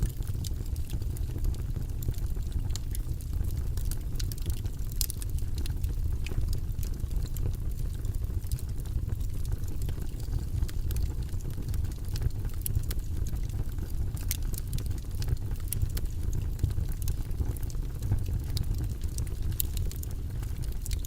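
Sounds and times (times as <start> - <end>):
faint irregular clicks: 3.8 - 8.6, 14.2 - 21.0.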